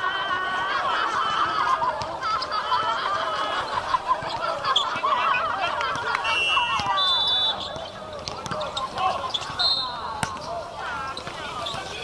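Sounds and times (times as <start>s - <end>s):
shoes squeaking on court: 3.5s - 12.0s.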